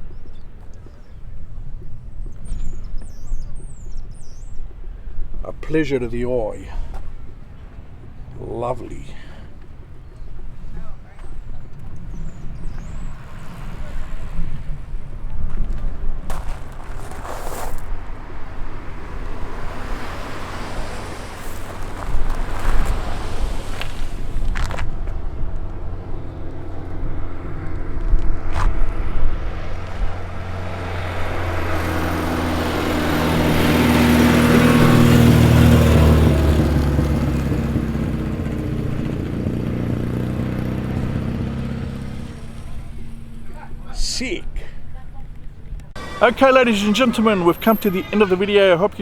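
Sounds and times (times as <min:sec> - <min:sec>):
low engine rumble: 0:00.0 - 0:49.0
car driving past: 0:07.0 - 0:15.4, 0:16.3 - 0:44.0, 0:44.6 - 0:49.0.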